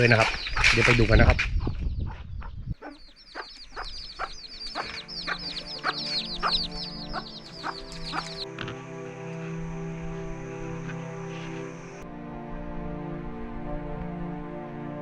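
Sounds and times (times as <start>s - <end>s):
chickens clucking: 0.0s - 8.8s
chick peeps: 1.6s - 8.4s
soft background music: 4.1s - 15.0s.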